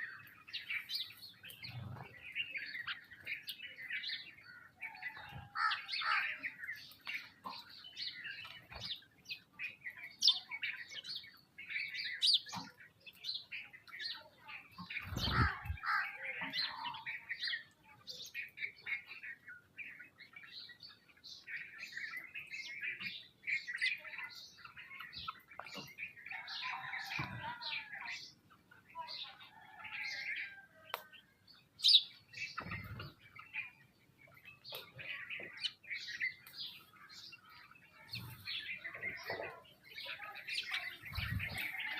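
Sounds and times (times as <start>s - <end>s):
sparrows chirping: 0.0s - 41.9s.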